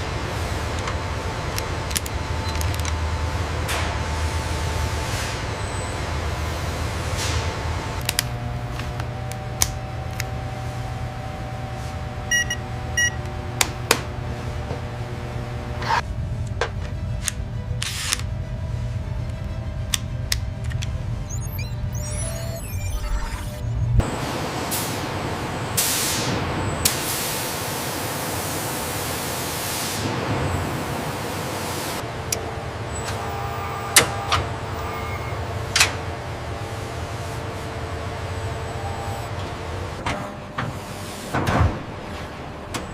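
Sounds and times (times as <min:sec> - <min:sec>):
low machine hum: 0:00.0 - 0:25.8
short electronic beeps: 0:12.3 - 0:13.2, 0:21.2 - 0:23.9.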